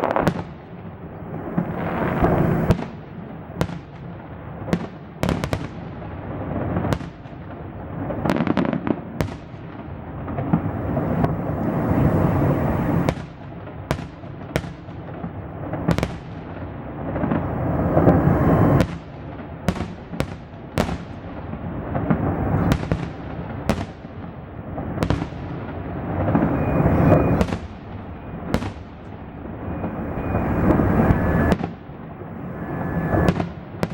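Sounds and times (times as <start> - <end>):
constant rumble: 0.9 - 2.8, 10.3 - 13.1, 16.9 - 18.8, 21.6 - 22.8, 25.6 - 33.4.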